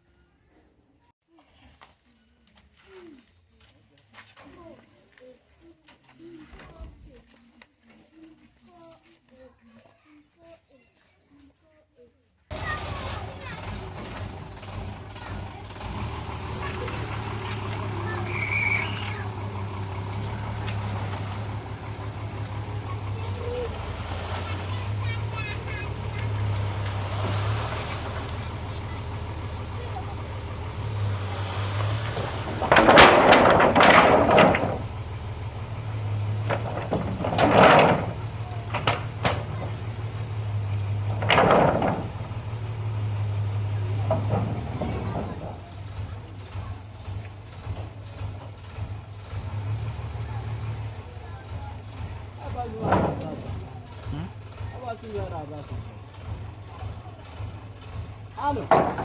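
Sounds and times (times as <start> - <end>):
metal roofing sheets scraping and rattling: 12.5 - 59.0
vehicle engine running: 12.5 - 59.0.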